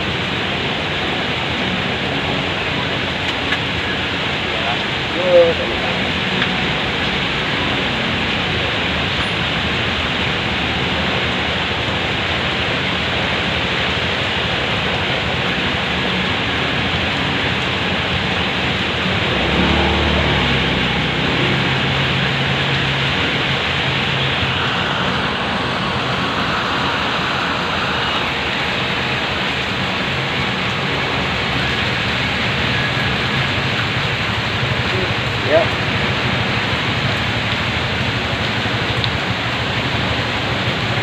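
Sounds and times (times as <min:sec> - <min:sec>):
heavy rain pouring: 0:00.0 - 0:41.0
vehicle engine hum: 0:00.0 - 0:41.0.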